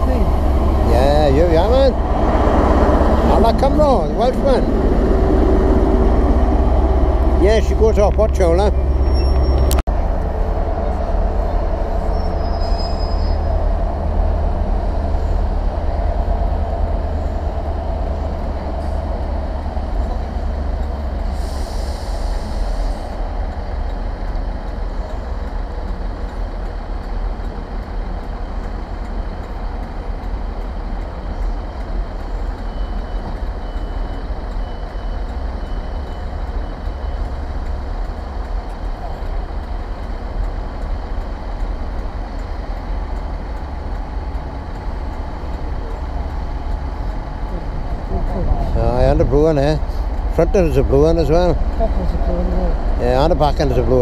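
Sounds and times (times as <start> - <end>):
diesel trains rumbling: 0.0 - 54.0.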